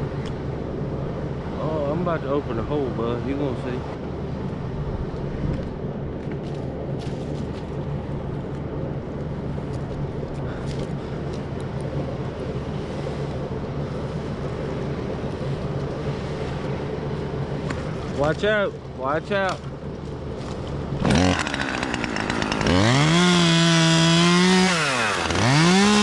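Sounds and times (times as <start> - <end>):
chainsaw cutting tree: 21.0 - 26.0.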